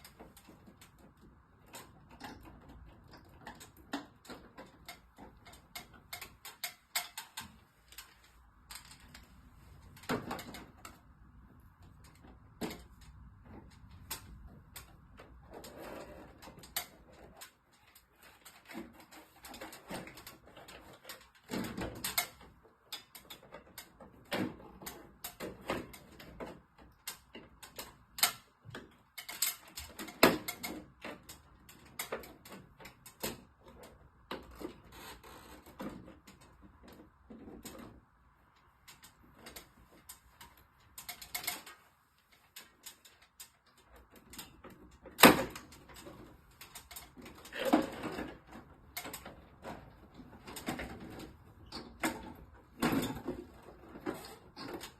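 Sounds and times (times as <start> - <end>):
clicks and knocks of hand work: 0.0 - 54.9.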